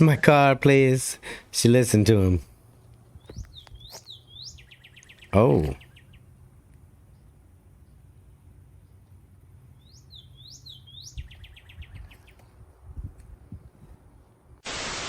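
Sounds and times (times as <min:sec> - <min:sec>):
bird trill: 0:03.2 - 0:06.2, 0:09.8 - 0:12.4.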